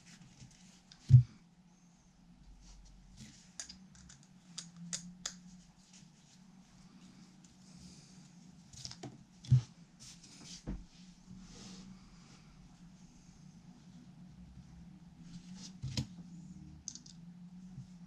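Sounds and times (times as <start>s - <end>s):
faint low hum: 0.0s - 18.0s
clicks and taps of small parts: 3.6s - 5.4s.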